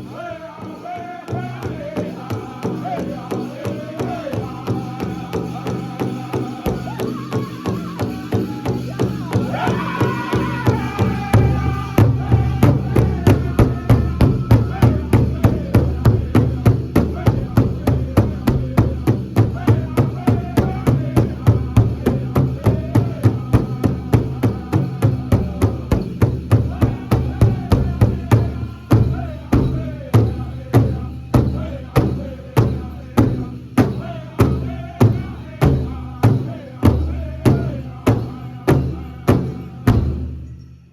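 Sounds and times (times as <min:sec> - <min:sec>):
high-pitched chorus singing: 0:00.0 - 0:40.0
steady beat on large drum: 0:09.3 - 0:40.4.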